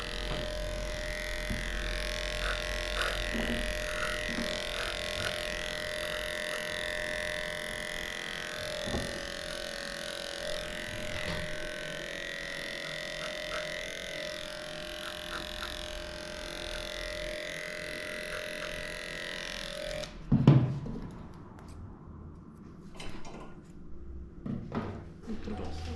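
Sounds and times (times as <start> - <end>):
electric clippers humming: 0.0 - 20.2.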